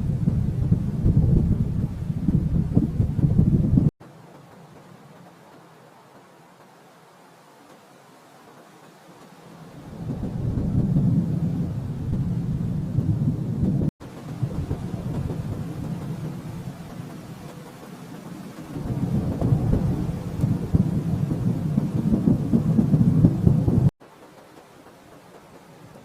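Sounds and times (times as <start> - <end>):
distant thunder rolling: 0.0 - 3.9, 9.5 - 23.9.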